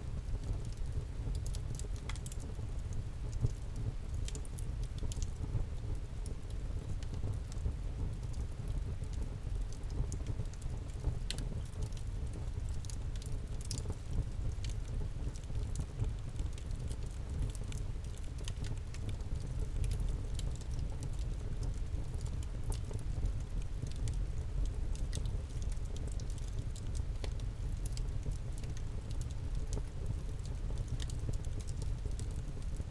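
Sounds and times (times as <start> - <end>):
campfire crackling: 9.8 - 32.9.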